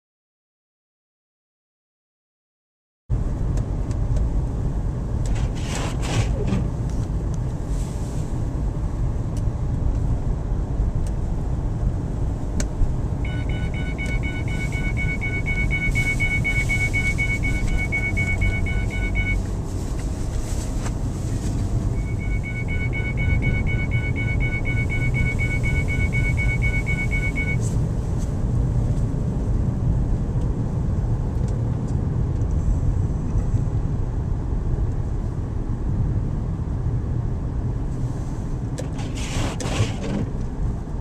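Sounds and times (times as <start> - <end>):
car engine and tyre rumble: 3.1 - 41.0.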